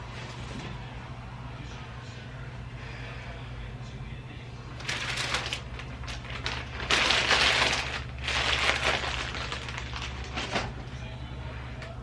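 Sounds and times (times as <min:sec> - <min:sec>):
steady low hum: 0:00.0 - 0:12.0
packaging crinkling: 0:04.8 - 0:10.9.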